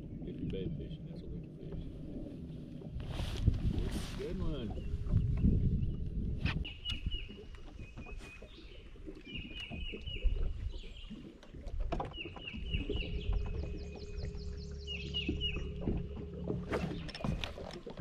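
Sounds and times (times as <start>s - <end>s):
songbirds chirping: 0.0s - 3.0s, 4.0s - 18.0s
steady low hum: 0.0s - 6.5s.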